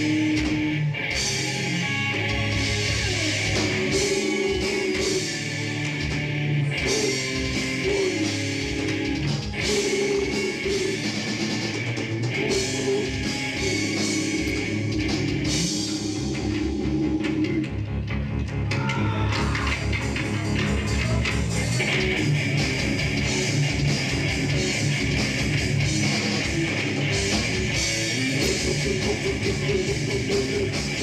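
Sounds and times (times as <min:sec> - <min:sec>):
rock band guitars and drums: 0:00.0 - 0:31.0
person singing: 0:03.5 - 0:05.4, 0:06.8 - 0:08.4, 0:09.6 - 0:11.2, 0:12.4 - 0:15.0, 0:28.4 - 0:31.0.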